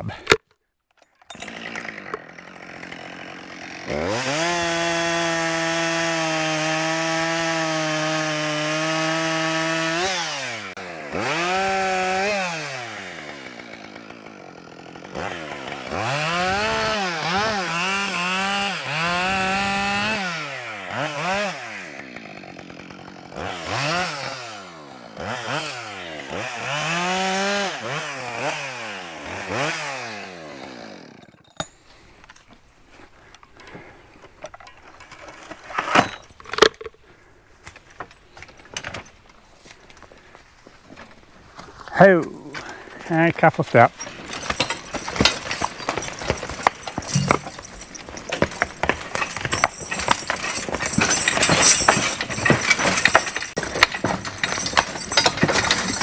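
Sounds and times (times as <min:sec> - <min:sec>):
chainsaw revving: 0:01.3 - 0:31.4, 0:42.3 - 0:56.0.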